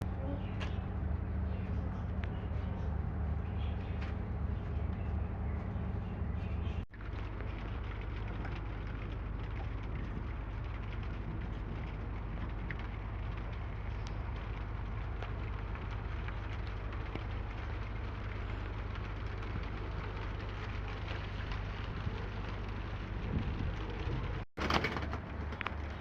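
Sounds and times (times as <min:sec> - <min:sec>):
low rumble: 0:00.0 - 0:26.0
steady rain falling: 0:06.9 - 0:26.0.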